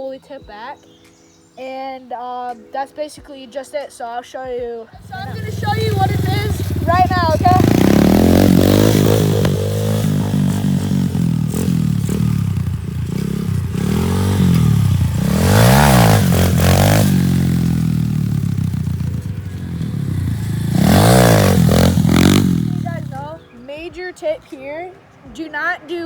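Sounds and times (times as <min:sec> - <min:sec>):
pit bike engine revving: 0:05.0 - 0:23.4.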